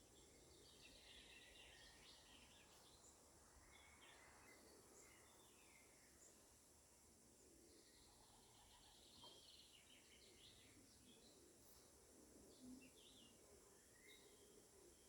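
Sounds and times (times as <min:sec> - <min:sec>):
quiet outdoor background: 0:00.0 - 0:15.0
small birds chirping: 0:07.8 - 0:15.0.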